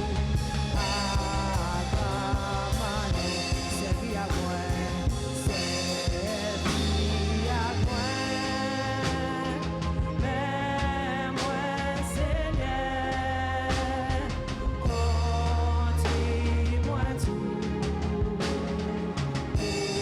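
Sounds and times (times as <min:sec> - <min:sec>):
live church band with drums: 0:00.0 - 0:20.0
person singing: 0:00.0 - 0:20.0.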